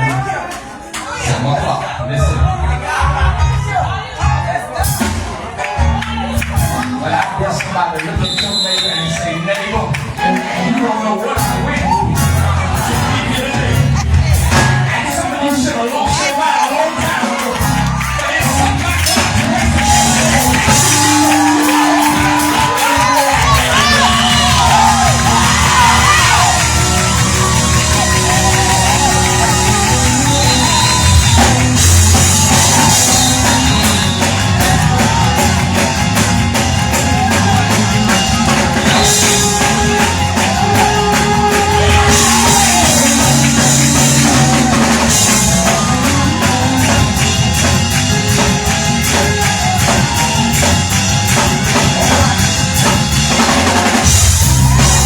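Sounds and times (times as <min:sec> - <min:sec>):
voices singing and shouting: 0:00.0 - 0:55.0
live gospel band playing: 0:02.4 - 0:55.0.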